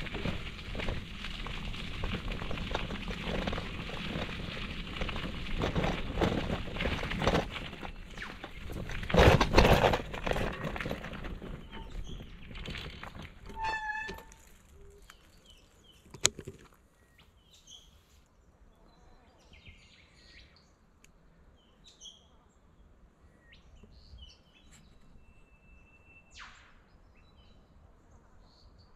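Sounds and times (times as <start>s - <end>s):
birds chirping: 10.8s - 28.9s.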